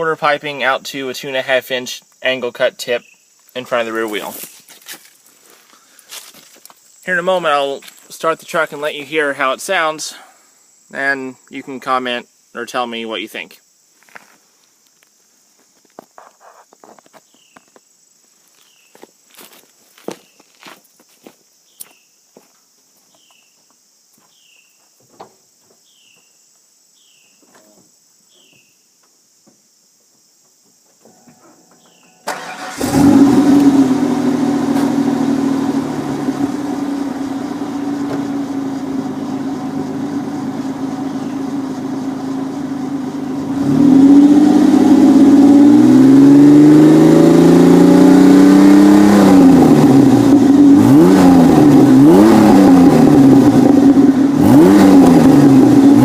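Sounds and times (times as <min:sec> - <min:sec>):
faint chirps: 0:25.8 - 0:29.0, 0:31.0 - 0:32.3
truck engine cranking and starting: 0:31.8 - 0:56.0
engine idling: 0:32.3 - 0:43.9
engine revving: 0:32.3 - 0:56.0.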